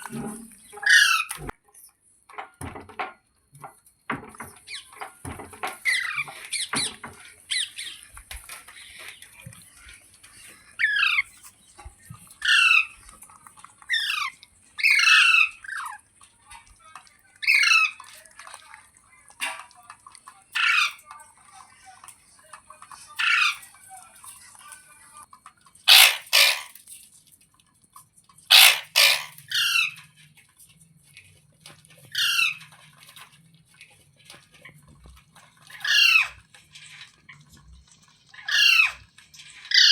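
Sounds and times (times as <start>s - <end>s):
parakeet calling: 0.6s - 1.4s, 5.8s - 8.2s, 10.8s - 11.4s, 12.4s - 13.0s, 13.9s - 16.0s, 17.4s - 18.0s, 20.6s - 21.0s, 23.2s - 23.6s, 25.9s - 26.8s, 28.5s - 30.0s, 32.1s - 32.6s, 35.8s - 36.4s, 38.4s - 39.0s
parakeet screeches: 0.7s - 1.5s, 10.8s - 11.3s, 12.4s - 13.0s, 13.9s - 16.0s, 17.4s - 18.0s, 20.6s - 21.0s, 23.2s - 23.6s, 25.9s - 26.8s, 28.5s - 30.0s, 32.1s - 32.7s, 35.8s - 36.4s, 38.4s - 39.0s, 39.7s - 39.9s.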